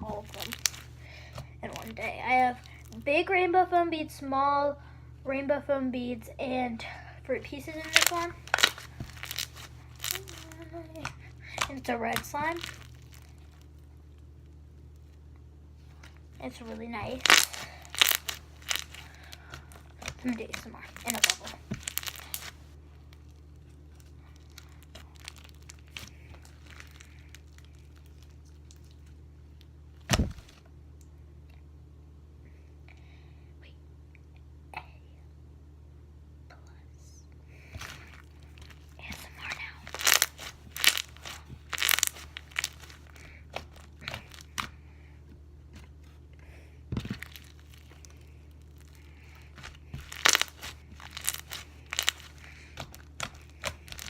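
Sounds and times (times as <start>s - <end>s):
slime crackling and clicking: 0.2s - 0.9s, 7.8s - 13.8s, 17.1s - 19.1s, 20.0s - 23.2s, 39.9s - 44.7s, 49.5s - 54.0s.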